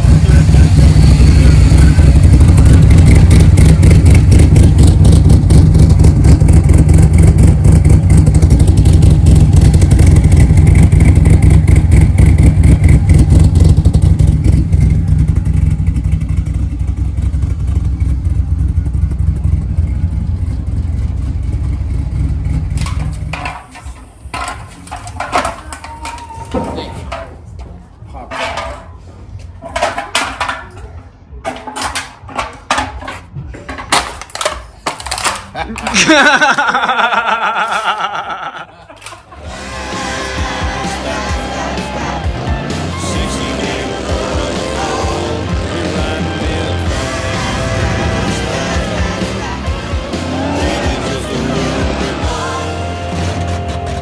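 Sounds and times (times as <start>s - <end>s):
vehicle engine running hard: 0.0s - 25.9s, 39.1s - 54.0s.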